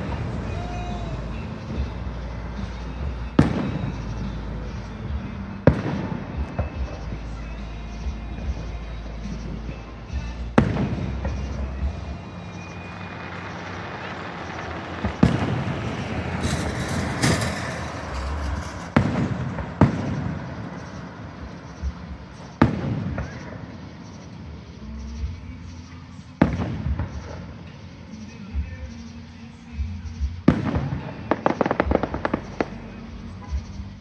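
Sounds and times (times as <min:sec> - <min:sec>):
fireworks booming: 0:00.0 - 0:34.0
fireworks crackling: 0:00.0 - 0:34.0.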